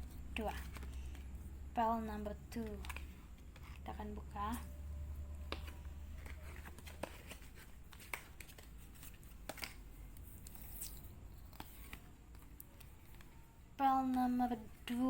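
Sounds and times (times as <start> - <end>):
faint low hum: 0.0 - 15.0
cards tapping and rustling: 0.2 - 1.5, 2.1 - 4.6, 5.4 - 13.4.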